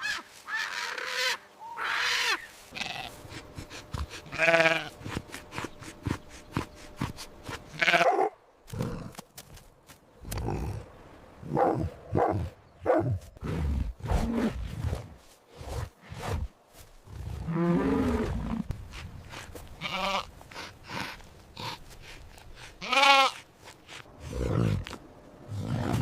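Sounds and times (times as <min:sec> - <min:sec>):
quavering bleats: 0:00.5 - 0:03.2, 0:04.0 - 0:05.0, 0:07.6 - 0:08.3, 0:19.8 - 0:20.3, 0:22.8 - 0:23.4.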